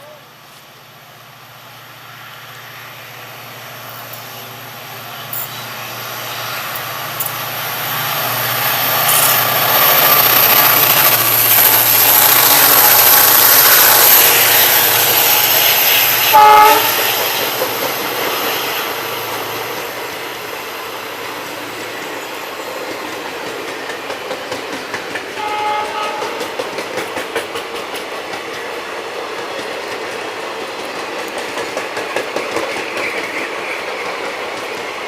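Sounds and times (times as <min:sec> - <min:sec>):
train passing at speed: 0:00.0 - 0:35.0
train horn blast: 0:16.2 - 0:17.1, 0:25.4 - 0:26.6.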